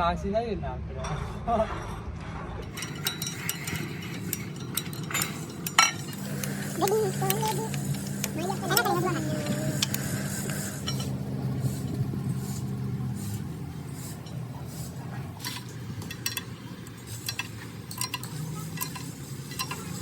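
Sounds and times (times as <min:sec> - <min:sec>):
metal clinks and taps: 0:02.6 - 0:11.2, 0:15.4 - 0:20.0.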